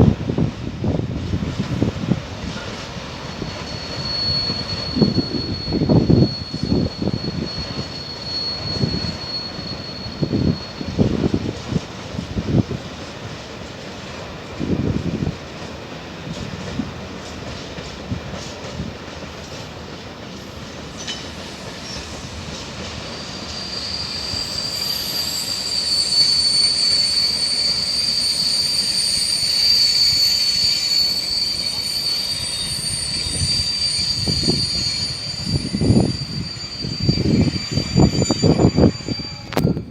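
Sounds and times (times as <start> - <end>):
wheels squealing on curve: 3.2 - 11.8, 20.4 - 39.9.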